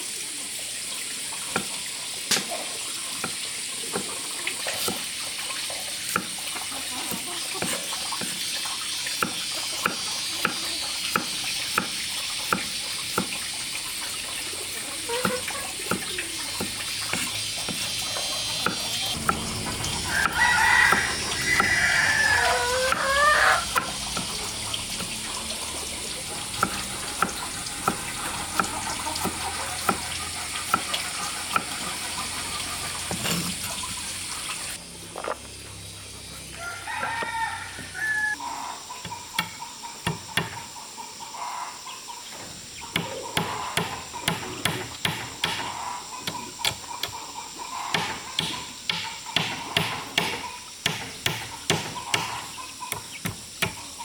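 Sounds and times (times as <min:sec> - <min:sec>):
rooster crowing: 0:19.1 - 0:24.0, 0:36.5 - 0:38.8.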